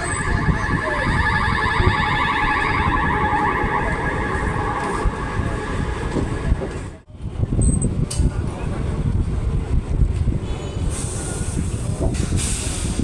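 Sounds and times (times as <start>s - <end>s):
train rumbling: 3.0s - 13.0s.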